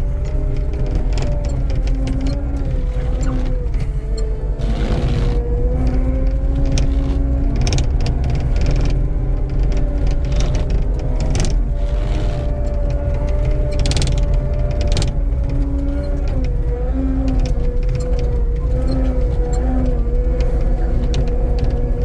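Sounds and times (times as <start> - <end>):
skid steer engine running: 0.0 - 22.0
steady whine: 1.0 - 13.3.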